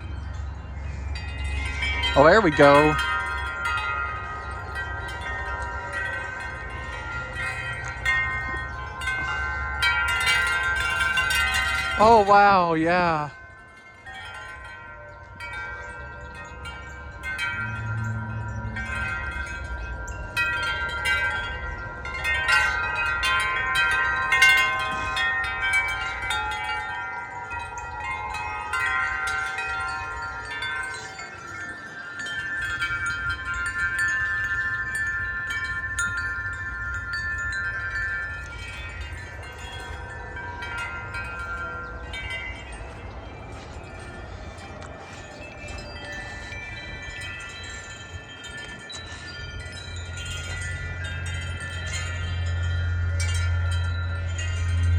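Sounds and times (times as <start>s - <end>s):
low wind rumble: 0.0s - 54.9s
wind chime ringing: 0.0s - 54.9s.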